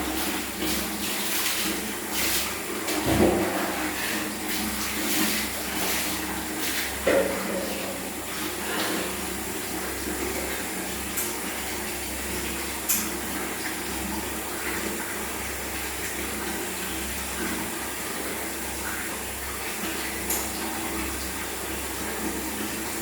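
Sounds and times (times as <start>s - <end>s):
running water: 0.0s - 23.0s.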